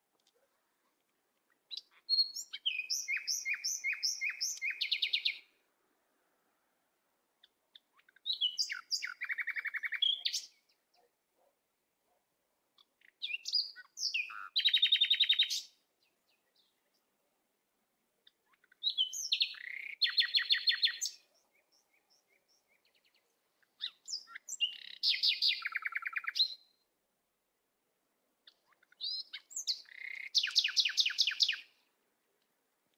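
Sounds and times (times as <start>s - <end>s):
songbird singing whistled trills: 1.7s - 5.5s, 7.4s - 11.1s, 13.0s - 17.0s, 18.3s - 26.8s, 28.5s - 31.8s.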